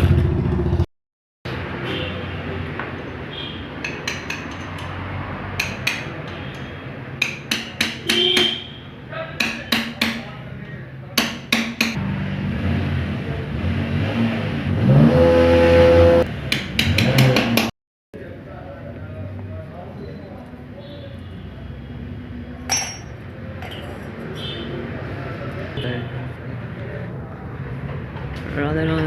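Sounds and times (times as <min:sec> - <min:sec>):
metal tools clinking: 0:22.7 - 0:24.1.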